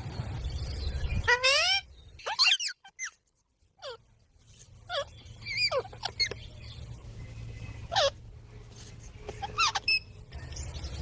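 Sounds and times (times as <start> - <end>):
parrot squeaky calls: 1.1 - 6.4, 7.8 - 8.4, 9.3 - 10.4.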